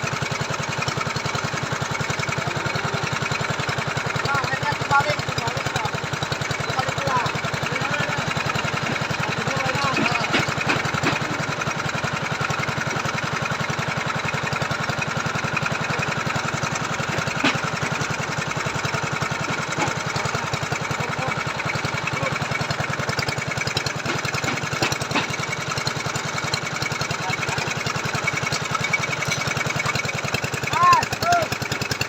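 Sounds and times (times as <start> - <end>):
auger engine running: 0.0 - 32.0.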